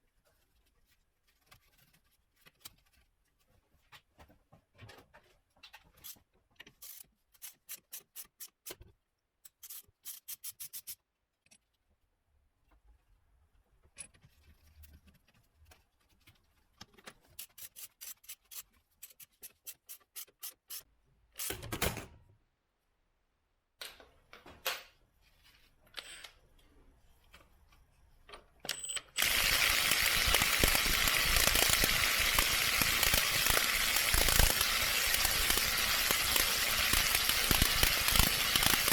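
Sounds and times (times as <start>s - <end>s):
ratchet wrench clicking: 29.2s - 38.9s.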